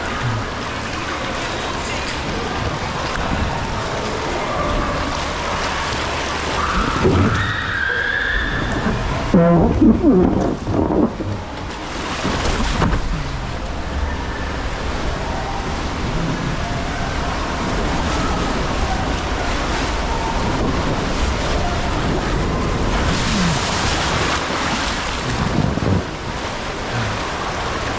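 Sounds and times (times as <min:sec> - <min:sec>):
rushing splashing water: 0:00.0 - 0:27.9
wind buffeting microphone: 0:08.5 - 0:27.5.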